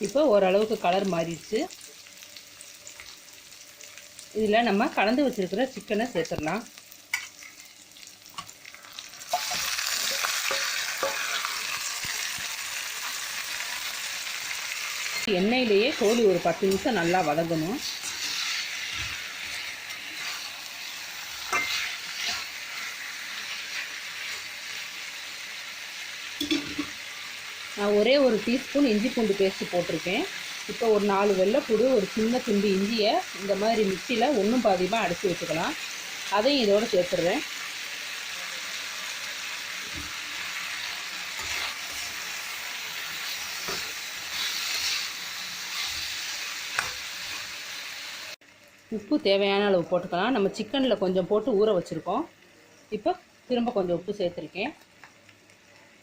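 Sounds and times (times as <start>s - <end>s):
chicken sizzling in hot oil: 0.0s - 56.0s
spoon scraping and knocking pan: 9.3s - 12.5s, 21.4s - 22.5s, 26.4s - 27.0s, 43.2s - 45.0s.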